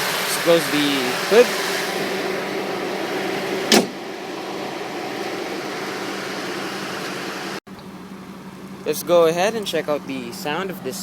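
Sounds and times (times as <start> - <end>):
car engine idling: 0.0 - 11.0
car hood slamming shut: 3.6 - 4.0.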